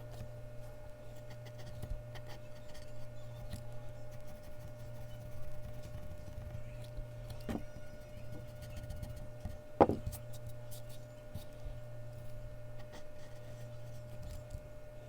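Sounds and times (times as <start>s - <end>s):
steady low hum: 0.0s - 15.0s
pencil scratching on paper: 1.2s - 6.9s, 7.5s - 11.5s, 12.8s - 14.5s.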